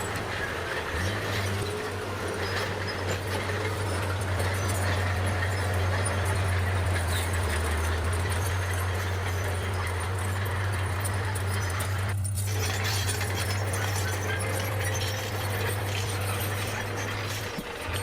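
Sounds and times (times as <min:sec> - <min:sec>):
bulldozer engine humming: 0:00.0 - 0:18.0
machine rattling and clattering: 0:00.0 - 0:18.0.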